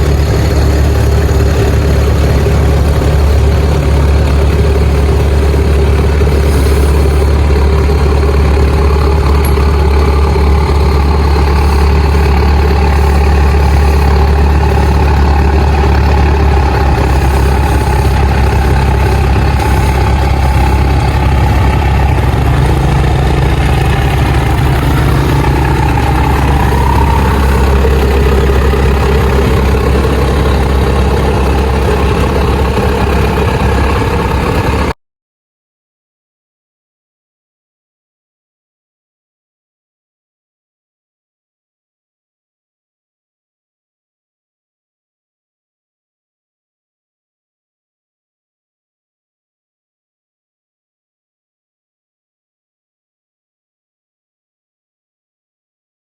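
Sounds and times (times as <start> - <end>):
diesel engine running loud: 0.0 - 35.0.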